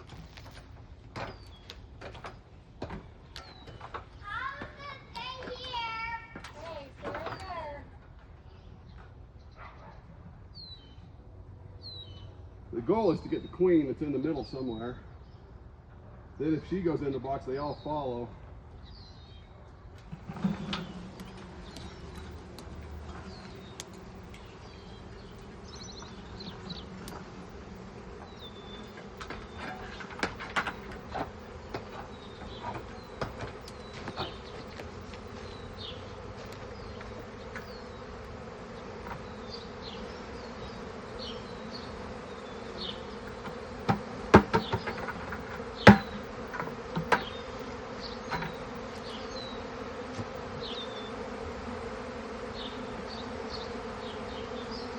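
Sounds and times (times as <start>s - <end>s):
bee swarm buzzing: 19.9s - 54.9s
sharp knocks: 43.8s - 47.3s.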